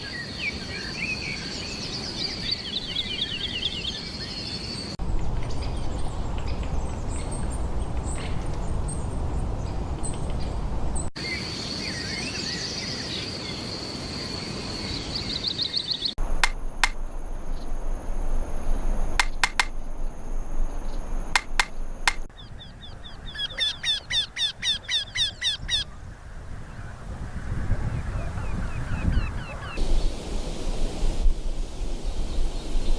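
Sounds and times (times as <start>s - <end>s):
small birds chirping: 0.5s - 16.2s, 20.8s - 26.0s, 28.0s - 30.2s
low rumbling noise: 5.0s - 11.1s, 16.2s - 22.3s.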